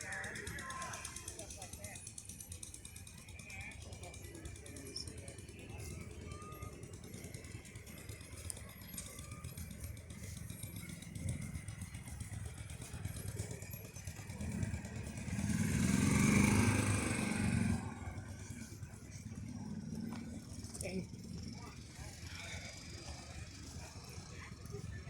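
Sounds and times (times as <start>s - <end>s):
vehicle engine rattling: 0.0s - 25.0s.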